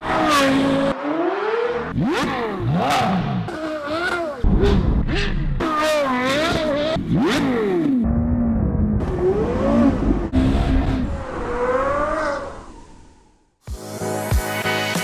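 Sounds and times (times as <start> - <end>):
sports car engine revving: 0.0 - 13.2.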